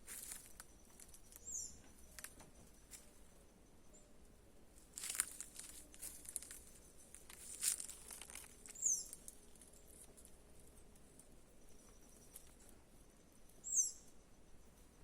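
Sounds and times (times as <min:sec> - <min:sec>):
dry leaves rustling: 0:00.0 - 0:03.2, 0:04.8 - 0:11.3
small bird chirp: 0:00.2 - 0:04.2, 0:05.2 - 0:10.1, 0:11.5 - 0:15.0.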